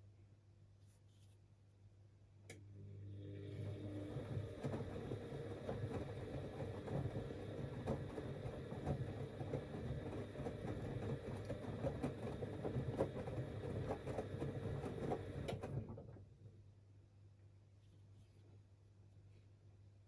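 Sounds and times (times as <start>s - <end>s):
washing machine motor running: 2.7s - 16.1s.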